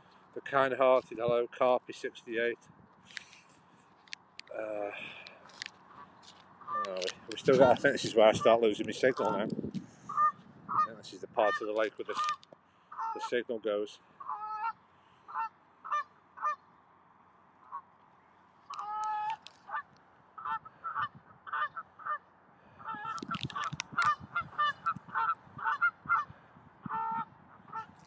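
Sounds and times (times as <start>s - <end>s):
geese honking: 5.8s - 13.4s, 14.1s - 16.6s, 17.6s - 17.9s, 18.7s - 28.0s.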